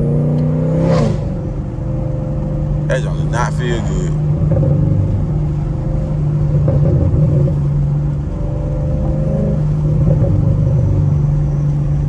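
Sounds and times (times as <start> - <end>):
car exhaust droning: 0.0 - 12.0.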